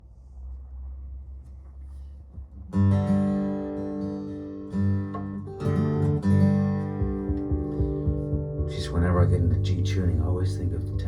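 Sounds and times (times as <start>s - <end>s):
acoustic guitar strumming chords: 2.8s - 11.0s.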